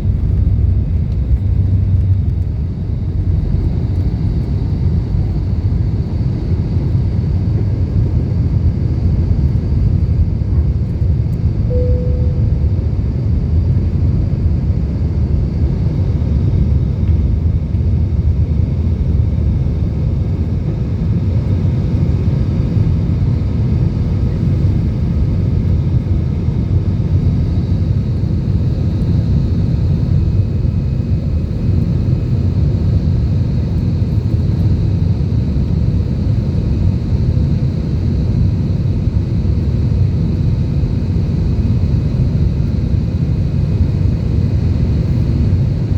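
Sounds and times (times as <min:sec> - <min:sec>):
jet engines rumbling in cabin: 0:00.0 - 0:45.9
short tone: 0:11.7 - 0:13.1.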